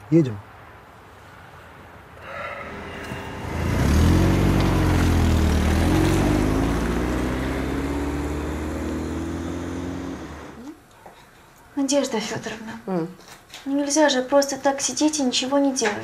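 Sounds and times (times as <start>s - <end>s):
car engine pulling away: 2.9s - 10.6s.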